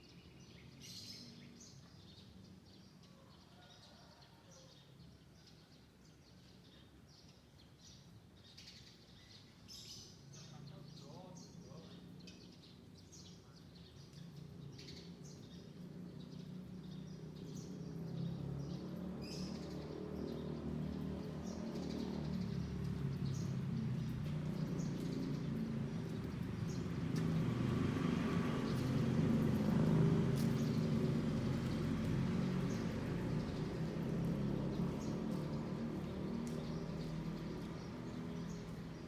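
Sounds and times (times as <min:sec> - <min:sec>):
small birds chirping: 0:00.0 - 0:03.9, 0:04.5 - 0:39.0
vehicle engine rumble: 0:18.0 - 0:39.0.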